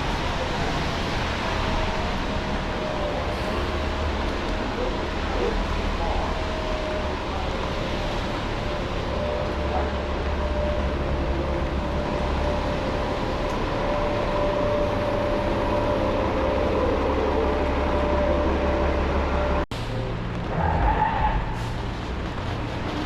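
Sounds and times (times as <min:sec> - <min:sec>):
continuous whine: 0:00.0 - 0:23.0
large vehicle rumbling: 0:00.0 - 0:23.0
street noise: 0:00.0 - 0:23.0.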